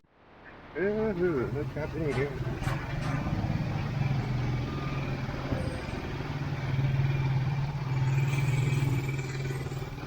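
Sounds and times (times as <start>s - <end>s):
vehicle engine running: 1.3s - 10.0s.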